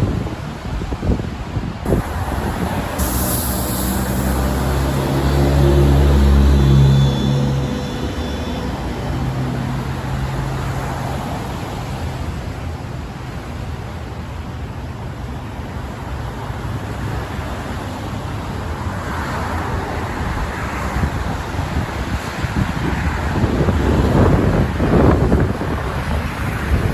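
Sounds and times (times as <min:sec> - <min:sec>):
road traffic rumble: 0:00.1 - 0:26.9
tyres hissing: 0:01.9 - 0:10.9.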